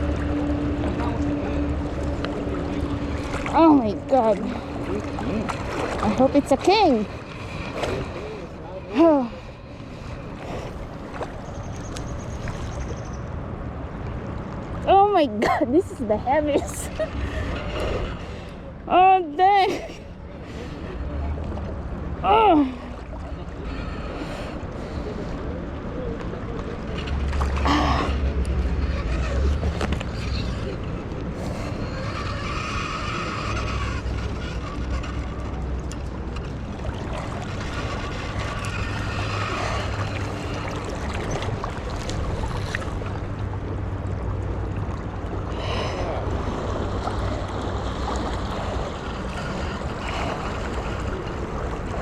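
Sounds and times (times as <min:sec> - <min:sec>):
river water rushing: 0:27.3 - 0:52.0.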